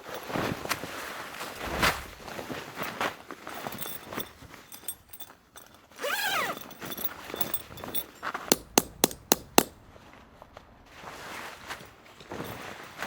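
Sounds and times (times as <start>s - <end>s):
tent stakes being hammered: 8.5s - 9.8s.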